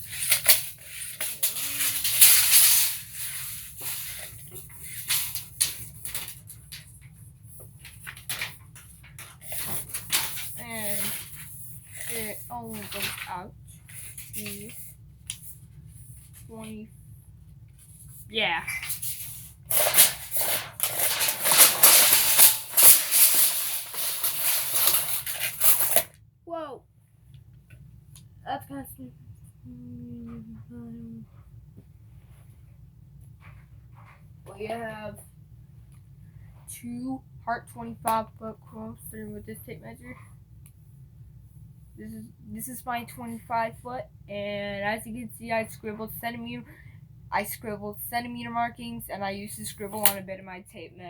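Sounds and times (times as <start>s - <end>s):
tape measure blade rattling: 0.0s - 6.4s, 18.9s - 26.1s.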